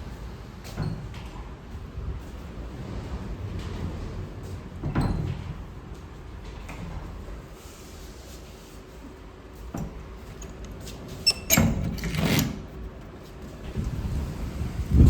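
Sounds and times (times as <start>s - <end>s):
storm wind rumble: 1.4s - 7.5s, 13.5s - 15.0s.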